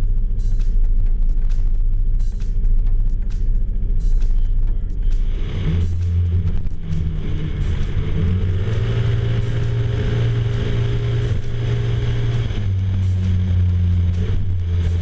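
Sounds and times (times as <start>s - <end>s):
scooter engine revving: 5.1s - 15.0s.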